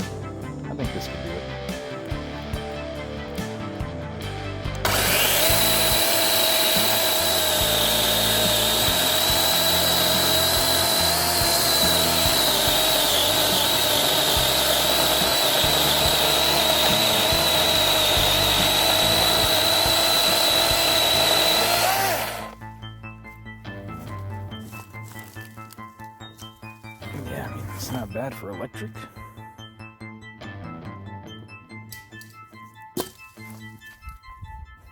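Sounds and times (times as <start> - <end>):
electric chainsaw cutting log: 1.7 - 22.7.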